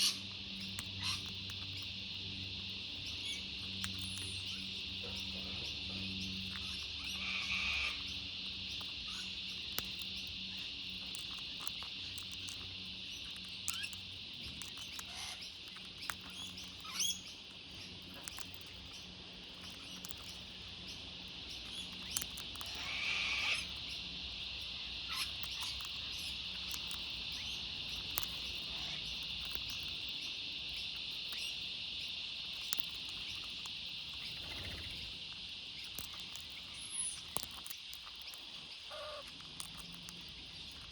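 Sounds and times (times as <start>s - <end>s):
insect chorus droning: 0.0s - 40.9s
short bird calls: 38.9s - 39.3s.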